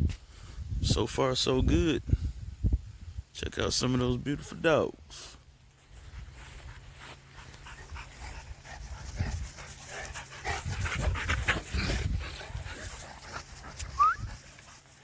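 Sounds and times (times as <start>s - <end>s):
dogs panting: 6.2s - 15.0s
dogs moving about: 7.0s - 15.0s.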